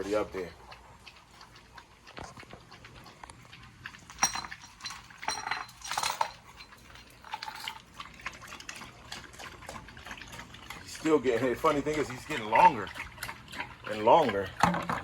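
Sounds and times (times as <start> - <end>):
heavy chain clinking and rattling: 4.1 - 7.8
ringing metal clanks: 4.2 - 6.4.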